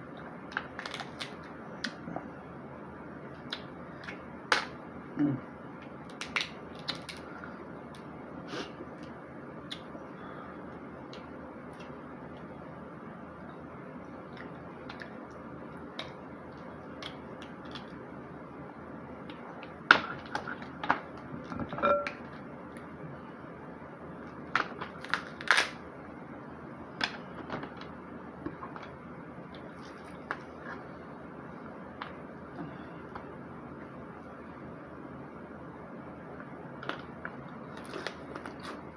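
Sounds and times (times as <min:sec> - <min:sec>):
steady background noise: 0:00.0 - 0:38.9
crab shells cracking: 0:00.5 - 0:02.0, 0:06.1 - 0:07.3, 0:24.5 - 0:25.8.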